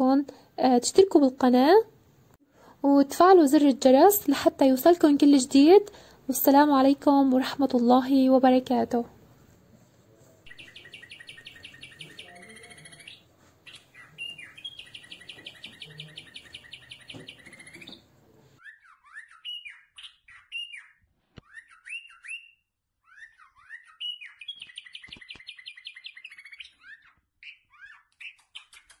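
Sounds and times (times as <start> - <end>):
small birds chirping: 10.4 - 29.0.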